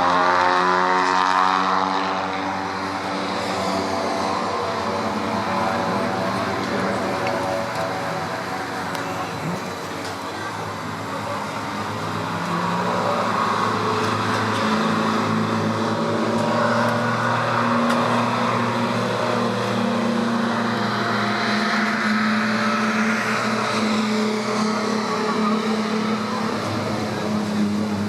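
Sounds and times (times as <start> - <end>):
racing car engines running: 0.0 - 28.0.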